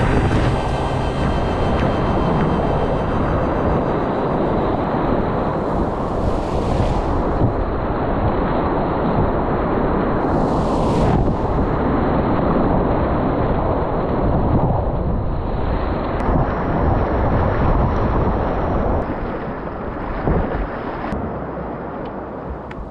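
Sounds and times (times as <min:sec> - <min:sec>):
river water rushing: 0:00.0 - 0:07.4
wind buffeting microphone: 0:00.0 - 0:22.9.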